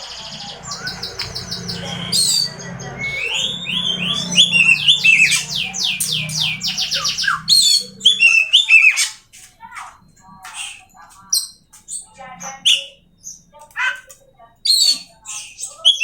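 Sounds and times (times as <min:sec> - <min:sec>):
low steady hum: 0:00.0 - 0:08.5
magpie-robin singing: 0:00.0 - 0:16.0.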